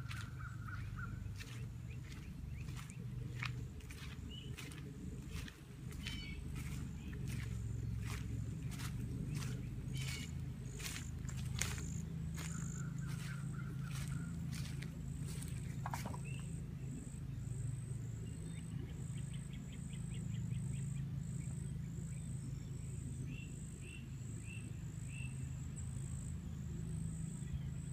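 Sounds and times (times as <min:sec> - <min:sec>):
bird trilling: 0:00.0 - 0:16.5
steady low hum: 0:00.0 - 0:27.9.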